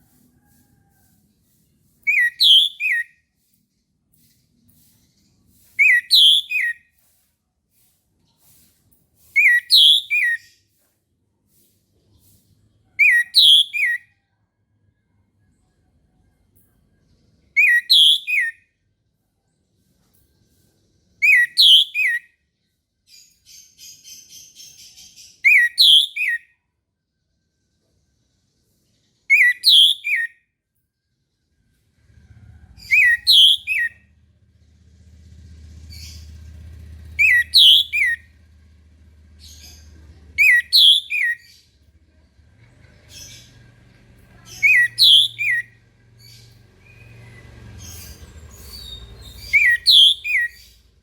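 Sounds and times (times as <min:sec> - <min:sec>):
thrush whistled song: 0:02.0 - 0:03.4, 0:05.5 - 0:07.1, 0:09.2 - 0:10.7, 0:13.0 - 0:14.2, 0:17.5 - 0:18.7, 0:21.2 - 0:22.4, 0:25.4 - 0:26.6, 0:29.3 - 0:30.4, 0:32.7 - 0:34.2, 0:35.9 - 0:38.4, 0:40.4 - 0:41.6, 0:44.6 - 0:45.9, 0:46.8 - 0:51.0
faint buzzy chatter: 0:38.2 - 0:49.8.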